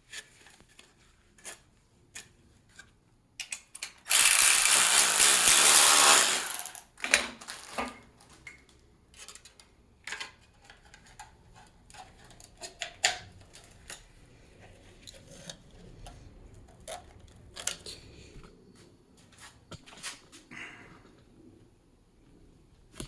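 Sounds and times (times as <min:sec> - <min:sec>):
rapid ratcheting: 0:04.1 - 0:06.9.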